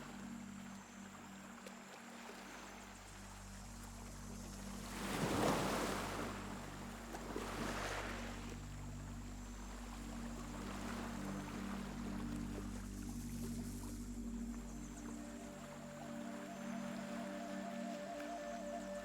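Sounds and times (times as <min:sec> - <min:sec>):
sea waves breaking: 0:00.0 - 0:19.0
steady low hum: 0:02.8 - 0:16.8.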